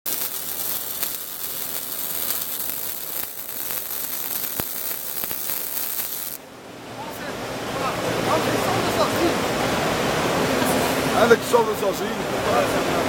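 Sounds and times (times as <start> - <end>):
welding arc crackling: 0.0 - 6.4
welding arc pops: 0.0 - 6.4.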